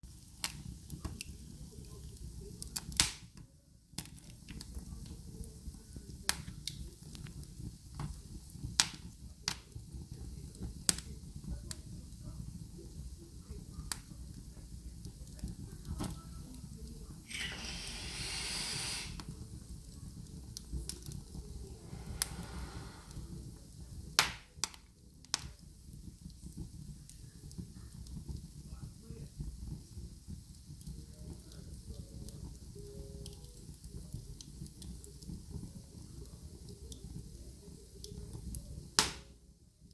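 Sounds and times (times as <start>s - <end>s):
fire rumbling: 0.1s - 39.2s
hiss in a pan: 4.6s - 24.5s
popcorn popping: 38.2s - 39.4s.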